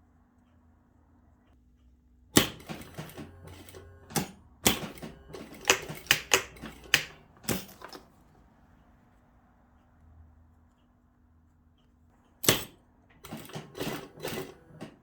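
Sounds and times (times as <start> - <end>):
sharp clicks and knocks: 2.4 - 8.1.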